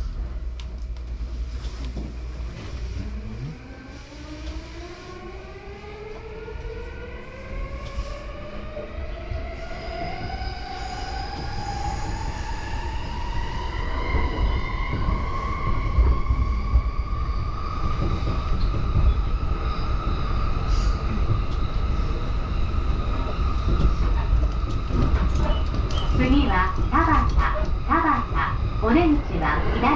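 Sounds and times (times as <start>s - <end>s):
train wheels rumbling on track: 0.0s - 29.9s.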